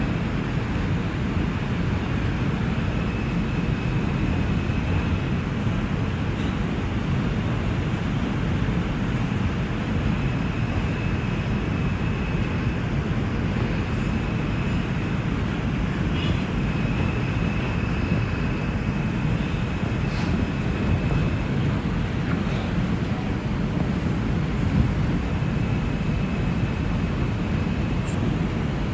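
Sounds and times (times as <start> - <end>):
train wheels rumbling on rails: 0.0 - 28.9
faint high whine: 8.9 - 28.9.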